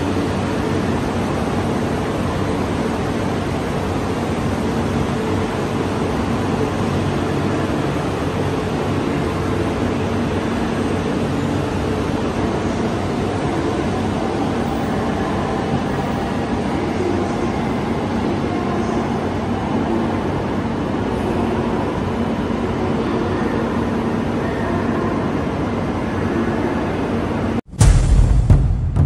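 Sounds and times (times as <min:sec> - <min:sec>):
train rumbling: 0:00.0 - 0:29.0
loud hit: 0:27.7 - 0:29.0.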